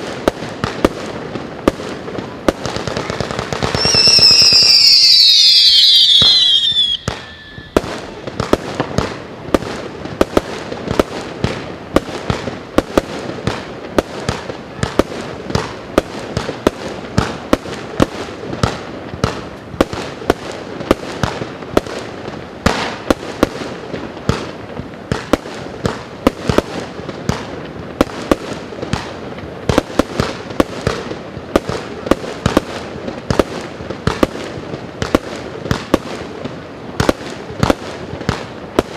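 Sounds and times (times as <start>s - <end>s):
fireworks cake launching shots: 0.0s - 38.9s
fireworks crackling: 0.0s - 38.9s
whistle falling in pitch: 3.8s - 7.8s.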